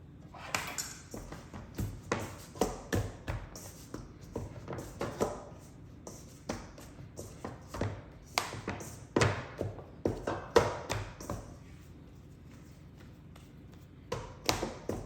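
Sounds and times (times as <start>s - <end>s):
hands kneading dough on board: 0.4s - 15.0s.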